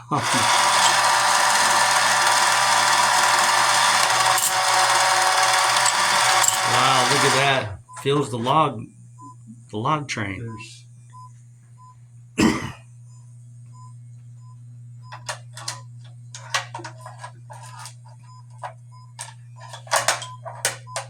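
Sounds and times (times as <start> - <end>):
steady low hum: 0.0 - 21.0
mechanical clicks and clacks: 0.2 - 7.4.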